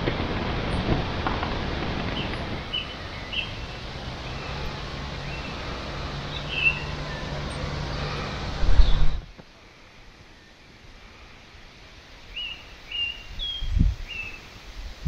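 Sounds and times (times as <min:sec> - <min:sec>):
rushing outdoor background noise: 0:00.0 - 0:15.0
bird chirps: 0:02.1 - 0:09.2, 0:12.3 - 0:14.5.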